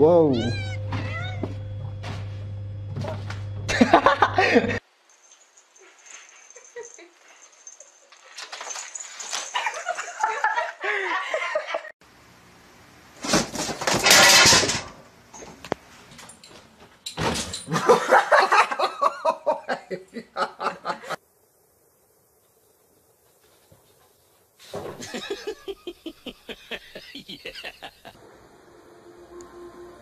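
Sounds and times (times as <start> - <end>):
people laughing: 3.7 - 4.8, 9.6 - 11.9, 17.7 - 21.2, 25.0 - 28.2.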